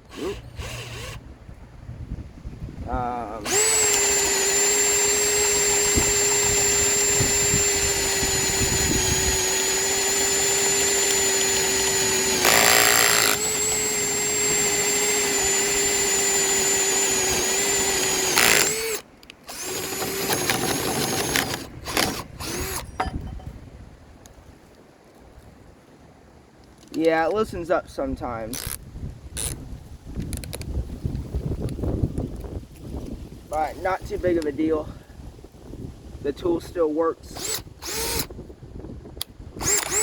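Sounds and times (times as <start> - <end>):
drill boring into wood: 0.0 - 1.3, 3.3 - 22.8, 28.6 - 28.8, 37.3 - 38.4, 39.6 - 40.0.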